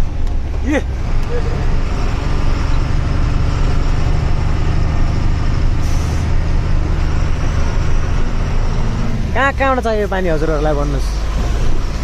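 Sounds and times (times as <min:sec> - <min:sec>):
truck engine droning: 0:00.0 - 0:12.0.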